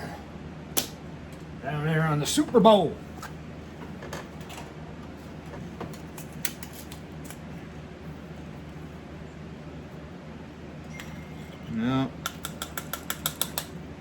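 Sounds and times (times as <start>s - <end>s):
steady low hum: 0.0s - 14.0s
small tools clicking: 12.2s - 13.7s.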